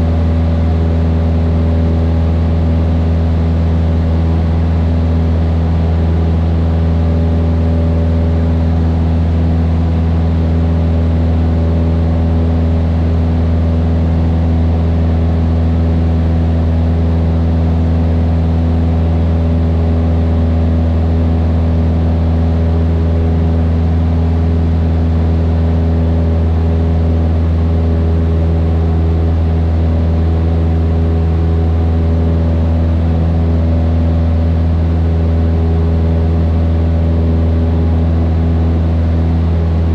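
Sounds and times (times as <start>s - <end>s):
airplane engine and propeller droning: 0.0s - 39.9s.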